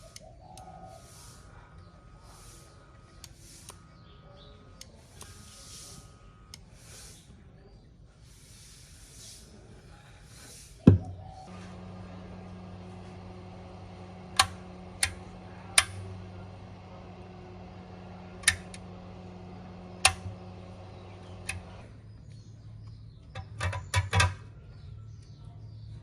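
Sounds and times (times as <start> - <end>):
low electrical hum: 0.0 - 8.2, 10.8 - 26.0
sharp clicks: 14.0 - 16.3, 18.2 - 21.8.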